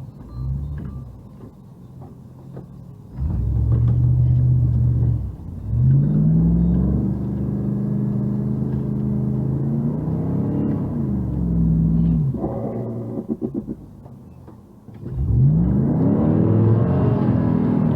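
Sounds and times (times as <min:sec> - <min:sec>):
car engine revving: 0:03.2 - 0:14.0, 0:15.0 - 0:17.9.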